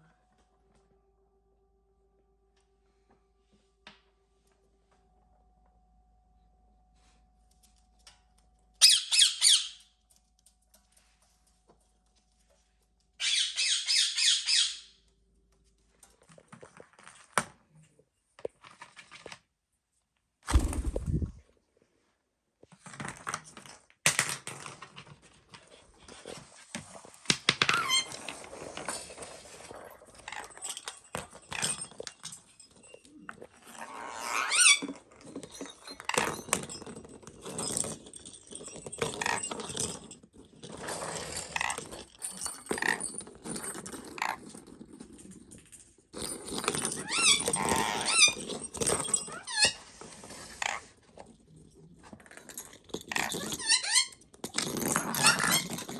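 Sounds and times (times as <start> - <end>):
parrot chattering and squeaking: 8.8 - 9.8, 13.2 - 14.9.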